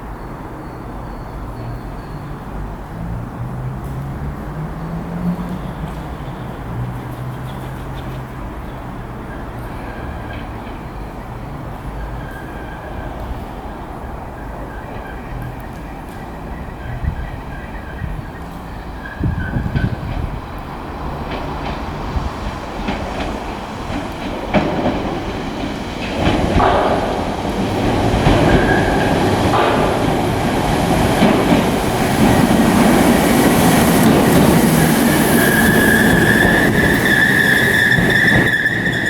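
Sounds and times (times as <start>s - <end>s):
wheels clicking over rail joints: 3.5s - 39.0s
electric train running: 19.3s - 39.0s
high steady squeal: 26.3s - 39.0s.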